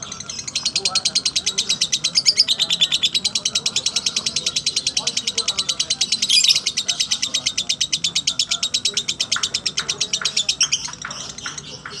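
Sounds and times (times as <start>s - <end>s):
lovebird trilling chatter: 0.1s - 9.2s.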